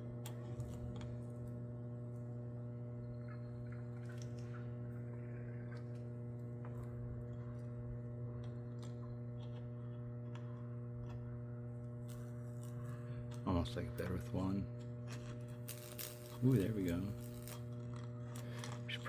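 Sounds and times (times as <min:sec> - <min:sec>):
electrical crackles and ticks: 0:12.0 - 0:19.0
transformers humming: 0:12.6 - 0:19.0.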